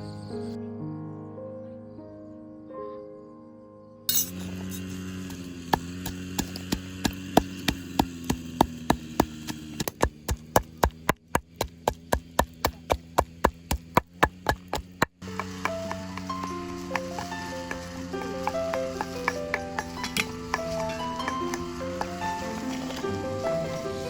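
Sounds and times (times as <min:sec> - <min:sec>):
knife chopping on wooden board: 0:05.3 - 0:23.1.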